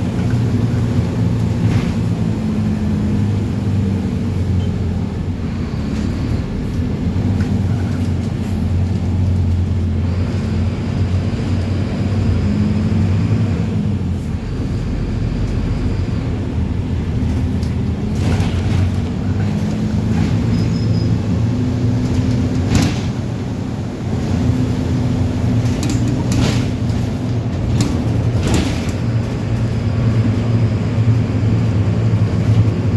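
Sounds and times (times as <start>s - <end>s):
diesel bus engine running: 0.0s - 32.9s.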